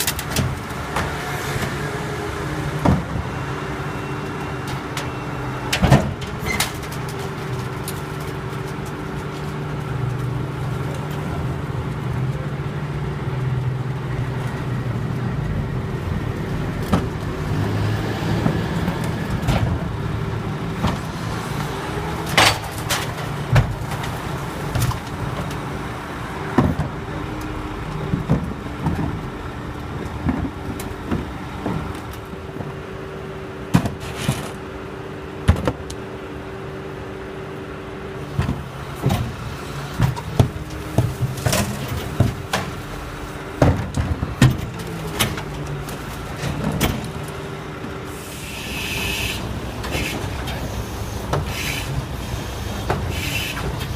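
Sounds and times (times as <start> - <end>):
garbage truck engine running: 0.0 - 53.9.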